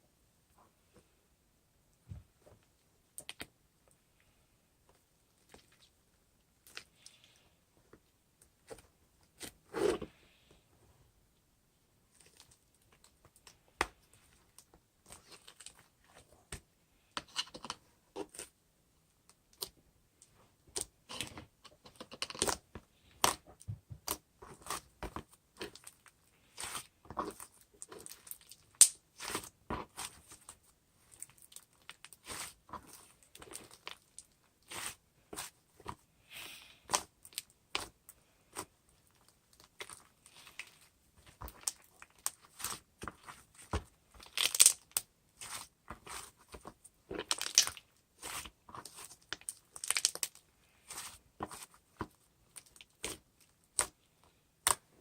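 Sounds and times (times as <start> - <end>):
clicks taps and crinkling handling: 36.9 - 55.0.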